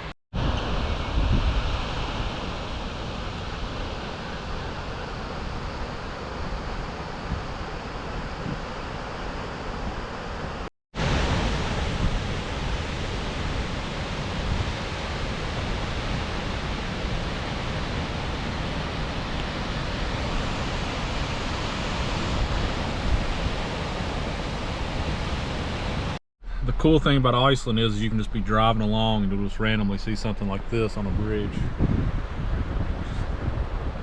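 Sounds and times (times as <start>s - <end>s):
waterfall roaring: 0.0s - 26.2s.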